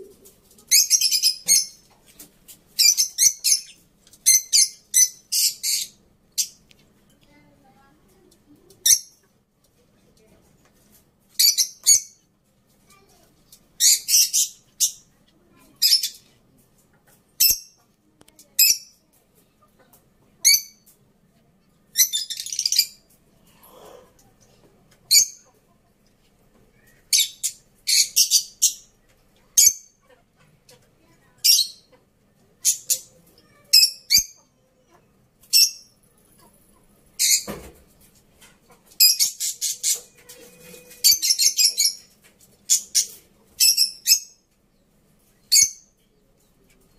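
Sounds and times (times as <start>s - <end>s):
birds chirping: 0.7s - 1.9s, 2.8s - 6.6s.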